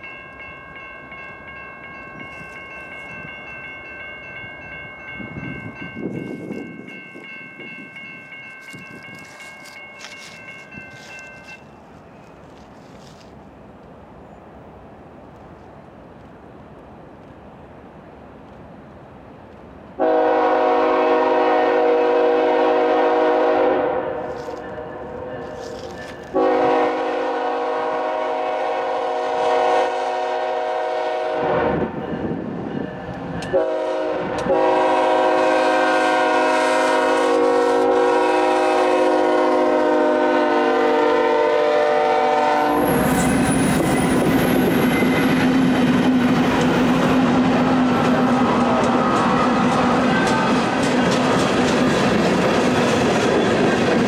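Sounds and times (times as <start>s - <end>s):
locomotive air horn blasts: 20.0s - 24.4s, 26.3s - 31.9s, 33.5s - 43.3s
train wheels clattering over rails: 42.7s - 54.0s.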